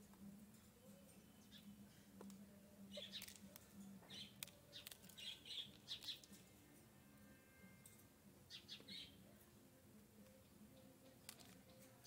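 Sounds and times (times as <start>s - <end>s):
faint bird chirps: 0.8s - 2.0s, 2.8s - 6.4s, 7.1s - 9.3s.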